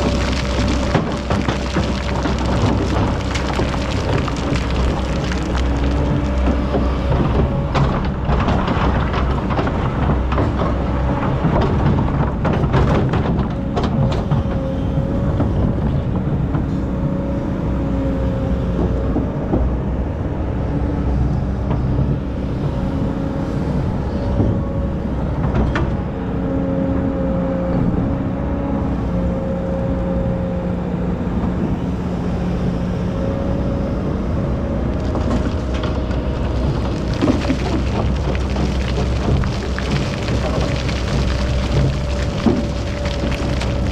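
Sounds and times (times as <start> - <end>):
excavator diesel engine running: 0.0 - 20.6, 30.9 - 43.9.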